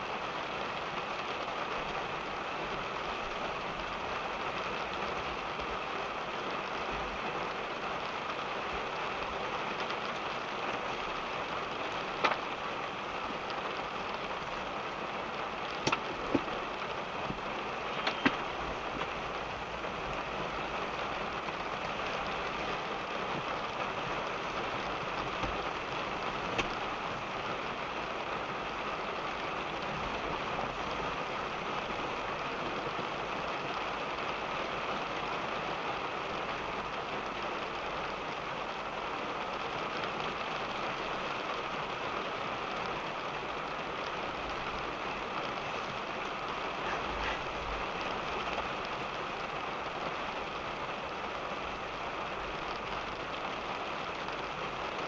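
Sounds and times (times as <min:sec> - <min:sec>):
rain patter on a car: 0:00.0 - 0:55.0
single raindrops hitting: 0:15.7 - 0:19.2.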